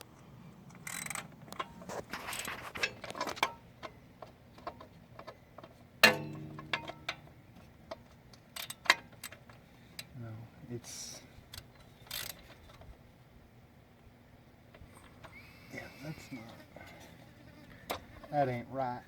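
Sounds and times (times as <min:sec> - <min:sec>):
loud metal clank with ring: 0:06.0 - 0:07.2.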